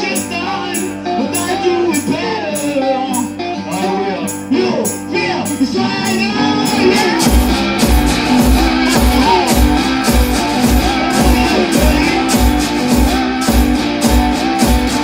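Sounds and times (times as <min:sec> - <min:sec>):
blues guitar: 0:00.0 - 0:15.0
bass drum beat: 0:05.5 - 0:15.0.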